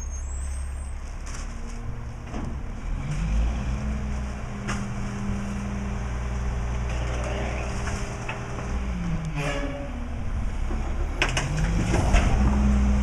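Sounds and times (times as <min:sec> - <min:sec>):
truck diesel engine revving: 0:02.8 - 0:09.4, 0:10.2 - 0:13.0.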